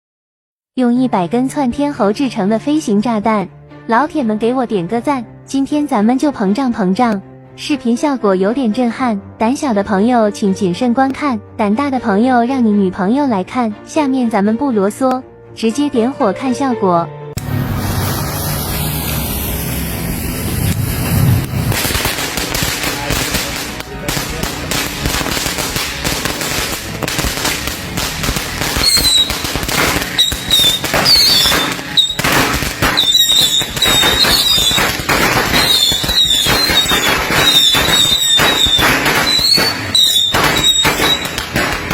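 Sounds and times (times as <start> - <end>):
bottle rockets hissing and crackling: 17.4 - 41.9
small firework bangs: 20.2 - 41.9
rocket whistles: 28.7 - 41.9.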